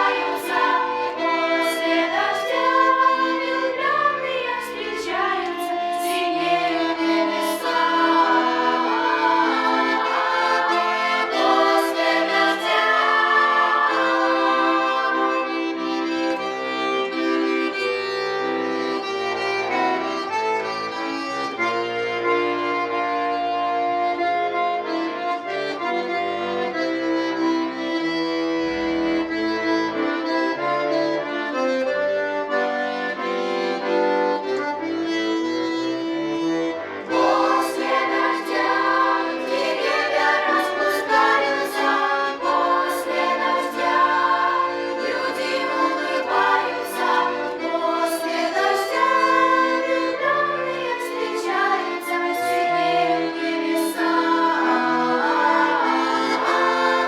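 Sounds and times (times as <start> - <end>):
girls singing in unison: 0.0 - 15.6, 37.1 - 57.0
accordion-like melody: 0.0 - 57.0.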